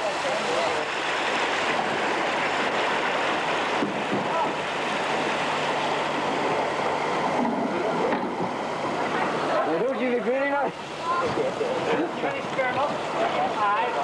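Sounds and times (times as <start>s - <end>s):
floodwater rushing: 0.0s - 14.0s
faint voices: 7.6s - 14.0s.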